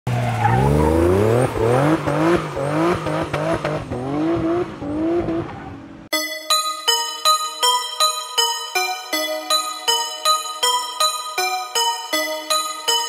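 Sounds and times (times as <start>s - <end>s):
car engine accelerating hard: 0.1s - 6.1s
music: 6.1s - 13.0s.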